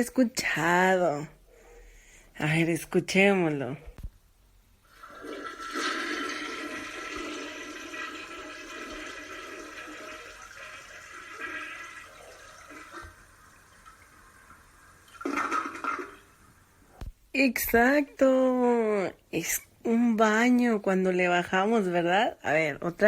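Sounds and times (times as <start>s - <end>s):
toilet flushing: 4.8s - 16.8s.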